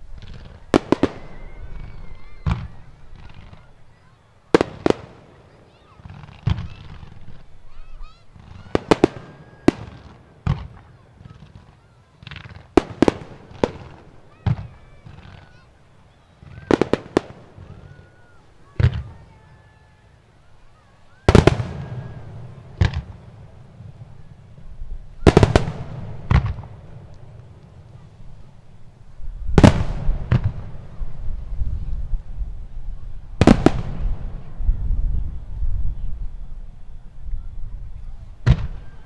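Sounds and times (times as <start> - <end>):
firework shells bursting: 21.2 - 31.6, 33.4 - 34.6.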